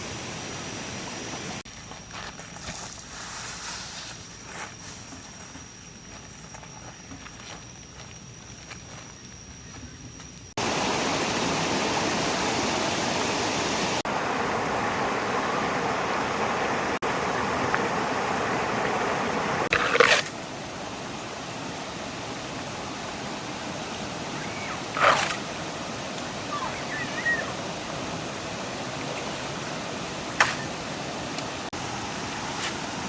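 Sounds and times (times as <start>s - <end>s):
stream water rushing: 0.0s - 1.6s, 10.6s - 33.0s.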